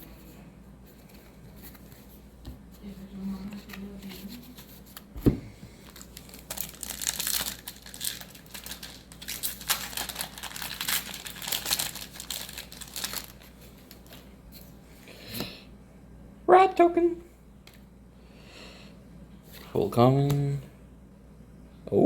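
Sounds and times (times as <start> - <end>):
foil wrapper tearing and crinkling: 5.8 - 14.3.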